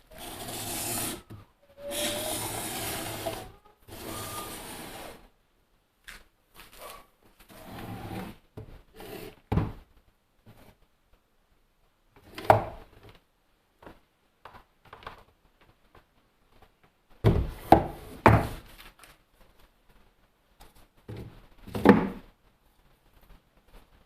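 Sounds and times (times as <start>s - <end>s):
light rubbing handling noise: 0.0s - 5.2s.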